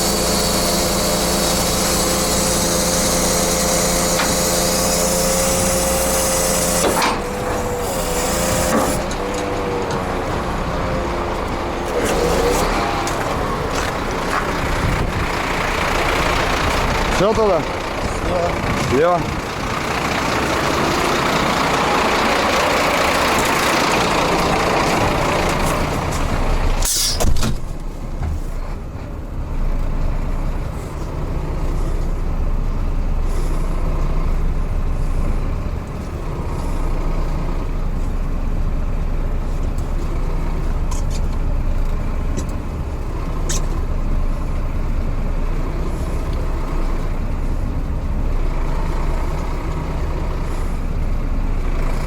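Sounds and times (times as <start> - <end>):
truck diesel engine running: 0.0 - 52.0
loud air hiss: 26.8 - 27.3
air brakes burst: 26.8 - 28.8.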